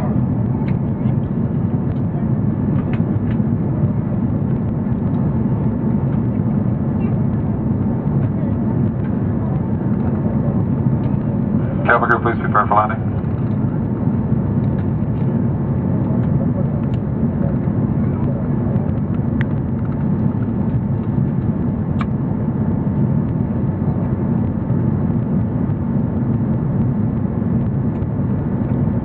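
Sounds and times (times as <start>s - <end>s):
airplane cabin engine roar: 0.0s - 29.0s.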